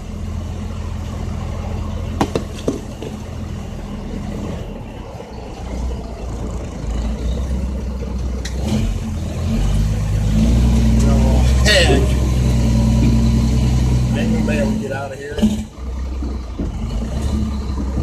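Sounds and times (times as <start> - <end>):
diesel truck engine running: 0.0 - 18.0
sharp clunks: 2.2 - 3.2.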